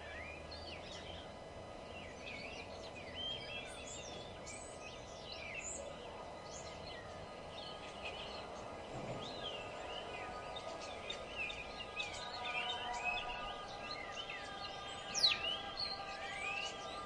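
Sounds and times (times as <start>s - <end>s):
low background hum: 0.0s - 17.0s
songbirds singing: 0.0s - 17.0s.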